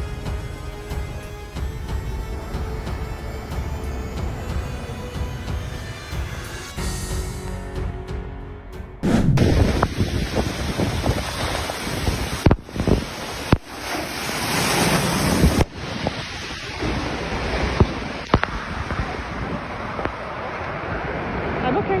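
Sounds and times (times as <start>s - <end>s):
wind buffeting microphone: 9.0s - 22.0s.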